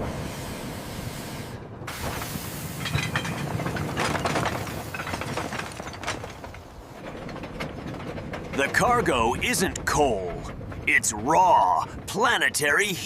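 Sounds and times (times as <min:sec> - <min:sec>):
steam-like hissing: 0:00.0 - 0:03.5
low rumble: 0:00.0 - 0:12.7.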